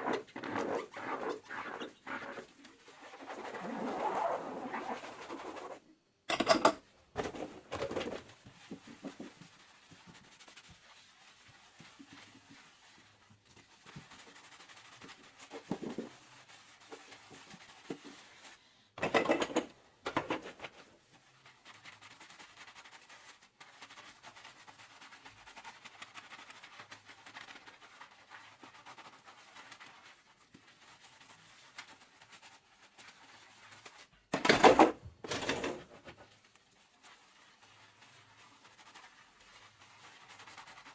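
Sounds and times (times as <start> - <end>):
dish scrubbing at sink: 0.0 - 20.9.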